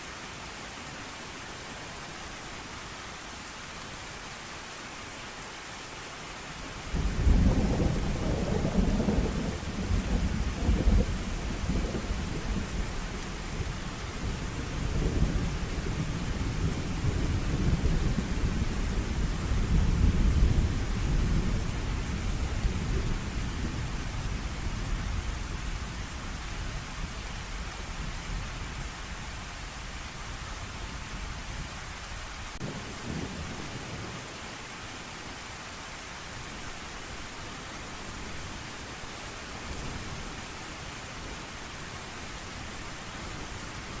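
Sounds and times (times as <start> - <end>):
heavy rain: 0.0 - 44.0
low thunder rumble: 7.0 - 26.4.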